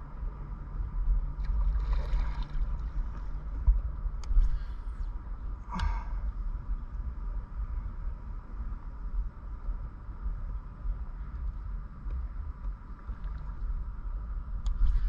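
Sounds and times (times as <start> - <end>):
steady low rumble: 0.0 - 15.0
water sloshing against boat: 1.4 - 3.9.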